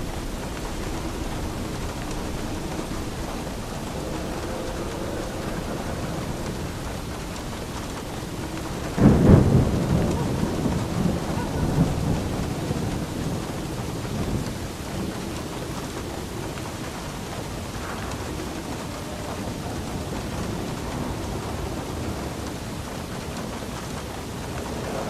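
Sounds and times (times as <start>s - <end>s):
steady rain: 0.0s - 25.0s
thunder crack and rumble: 0.0s - 25.0s.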